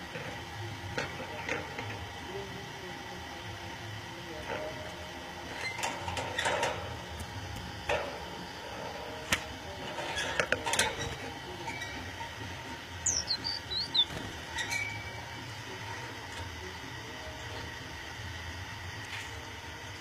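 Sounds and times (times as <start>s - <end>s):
steady low hum: 0.0s - 20.0s
budgerigars chirping: 13.0s - 14.2s.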